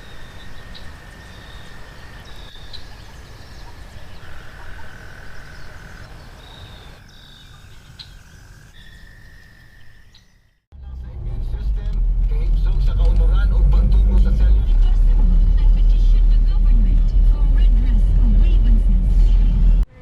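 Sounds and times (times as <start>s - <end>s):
low rumble: 10.7s - 19.9s.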